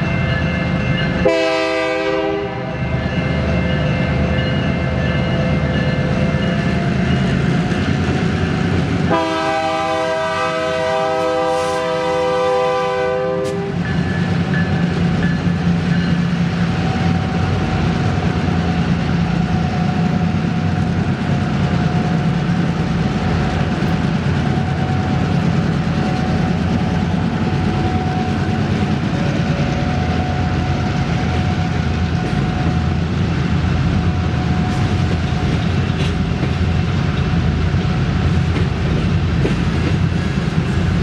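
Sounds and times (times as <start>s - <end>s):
moving train noise: 0.0s - 41.0s
train air horn blast: 1.2s - 2.7s, 9.1s - 13.8s.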